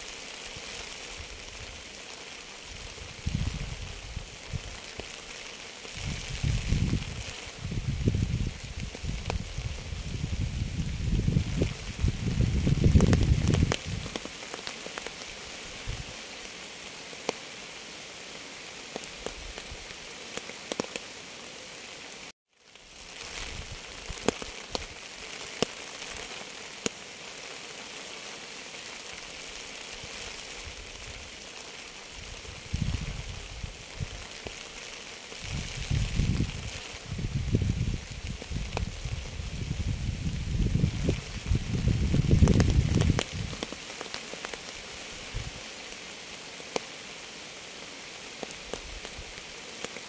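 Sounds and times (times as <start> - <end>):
raindrops ticking on a surface: 0.0 - 21.2, 22.5 - 50.0
steady rain: 0.0 - 50.0
wind gusts rumbling: 2.8 - 4.8, 6.0 - 14.1, 32.2 - 34.2, 35.4 - 43.6.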